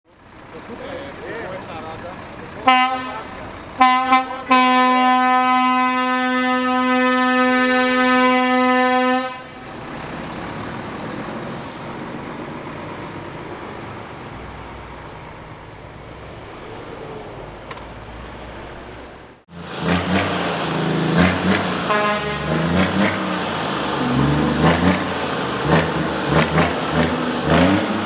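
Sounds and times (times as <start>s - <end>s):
road and engine rumble: 0.0s - 28.0s
truck air horn: 2.6s - 9.9s, 21.1s - 28.0s.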